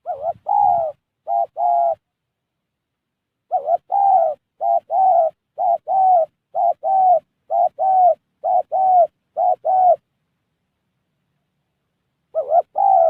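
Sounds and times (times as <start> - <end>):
dove cooing: 0.0 - 2.1, 3.4 - 10.1, 12.3 - 13.0.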